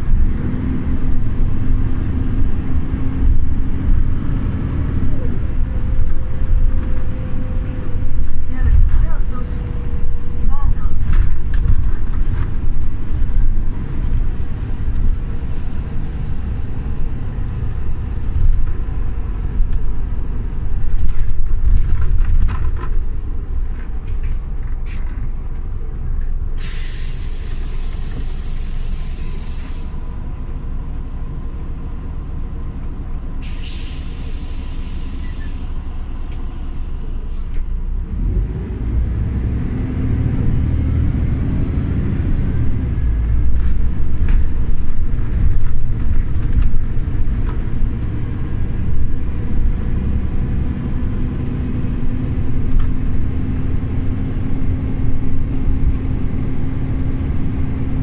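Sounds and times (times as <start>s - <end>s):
bus engine running: 0.0s - 58.0s
compressed air hiss: 26.6s - 30.0s, 33.4s - 35.2s.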